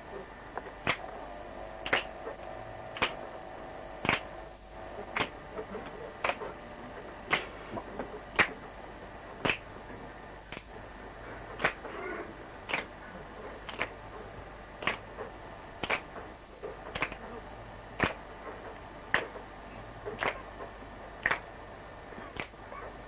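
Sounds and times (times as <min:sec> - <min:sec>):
sharp clicks: 0:04.0 - 0:04.3, 0:10.5 - 0:10.7, 0:13.7 - 0:14.0.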